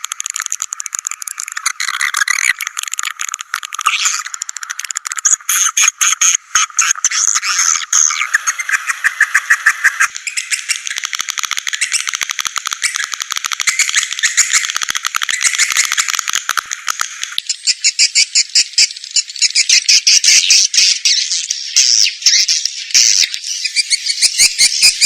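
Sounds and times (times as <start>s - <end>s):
swiftlets chattering twitter: 0.1s - 16.2s.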